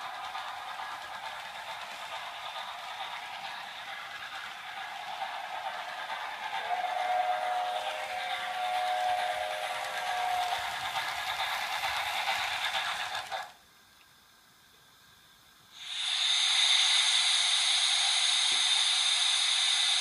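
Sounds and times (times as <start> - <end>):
steam locomotive hissing steam: 0.0 - 13.6, 15.7 - 20.0
steam whistle: 6.5 - 10.8.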